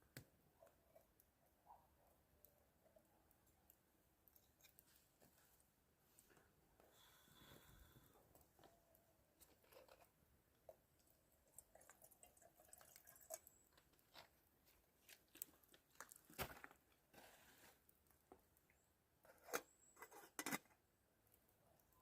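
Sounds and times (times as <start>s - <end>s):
small clicks and crackles: 2.9s - 5.6s, 9.4s - 17.2s.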